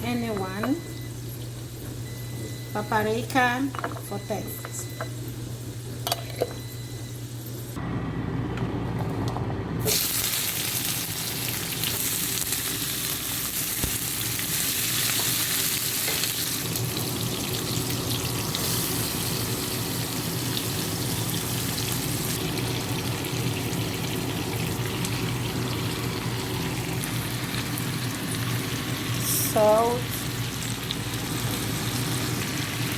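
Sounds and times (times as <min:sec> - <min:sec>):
food sizzling in frying pan: 0:09.9 - 0:32.9.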